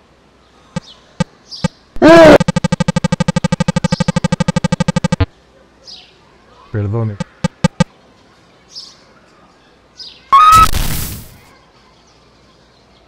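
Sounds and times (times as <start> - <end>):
sharp clicks: 7.2 - 7.9
falling bird chirps: 10.4 - 11.5.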